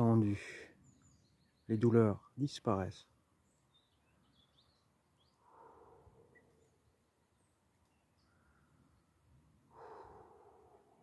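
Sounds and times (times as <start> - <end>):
faint bird chirps: 0.6 - 2.2, 3.0 - 11.0
soft breath: 5.4 - 6.7, 9.6 - 11.0.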